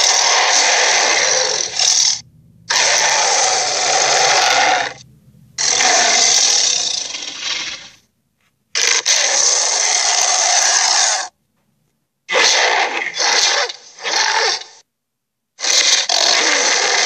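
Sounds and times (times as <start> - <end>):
creature breathy rasps: 0.0 - 5.0.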